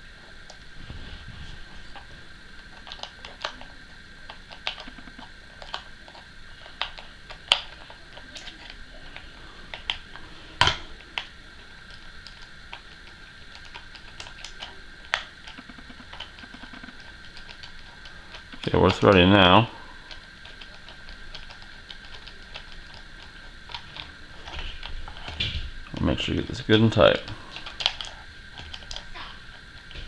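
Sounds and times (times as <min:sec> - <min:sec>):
faint steady high tone: 0:00.0 - 0:30.0.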